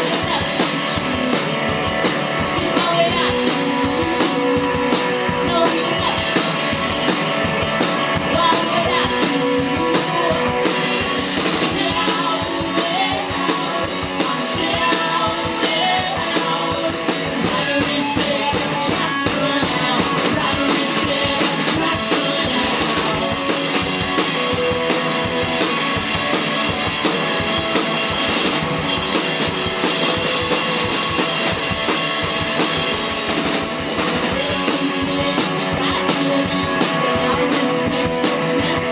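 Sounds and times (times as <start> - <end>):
person singing: 0.0 - 7.2, 8.2 - 25.7, 34.0 - 38.9
drum kit: 0.0 - 38.9
electric guitar: 0.0 - 38.9.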